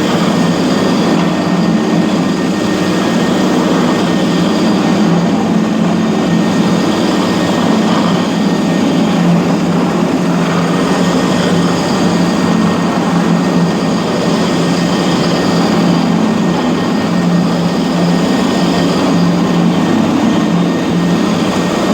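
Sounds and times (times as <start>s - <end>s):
floor grinder on concrete: 0.0s - 21.9s.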